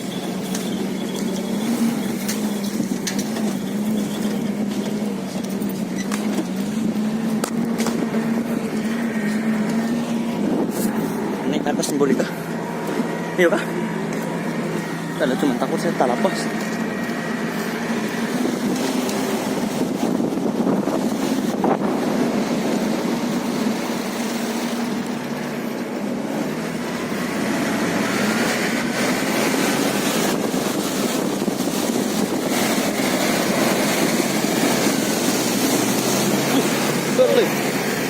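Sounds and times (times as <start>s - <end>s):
engine running: 0.0s - 38.0s.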